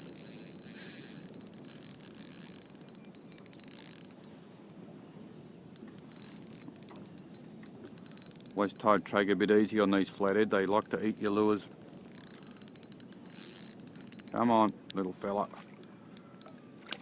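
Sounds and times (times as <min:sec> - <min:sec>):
fishing reel clicking: 0:00.0 - 0:04.3, 0:05.8 - 0:14.8.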